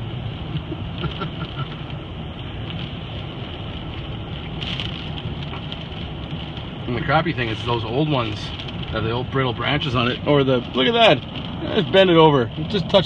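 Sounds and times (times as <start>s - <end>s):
car engine running: 0.0s - 13.0s
rain and wind on car: 0.0s - 13.0s
road noise: 0.0s - 13.0s.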